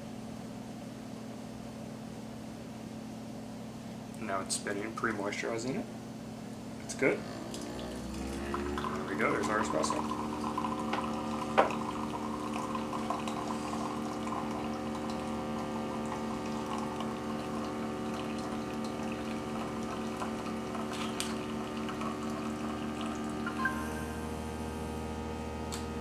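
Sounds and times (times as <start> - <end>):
coffee maker whirring: 6.7 - 26.0
coffee pouring into glass: 7.0 - 24.5.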